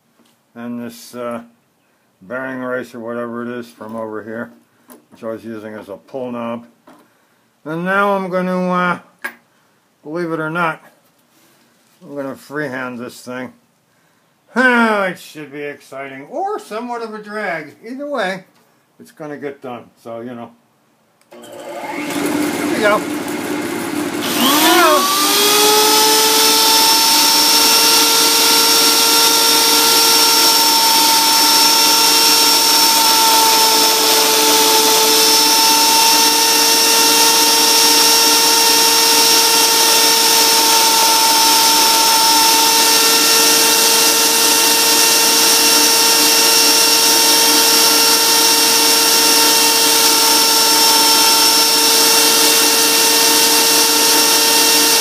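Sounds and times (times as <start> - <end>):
die grinder whining: 21.3 - 55.0
lathe electric motor: 21.3 - 55.0.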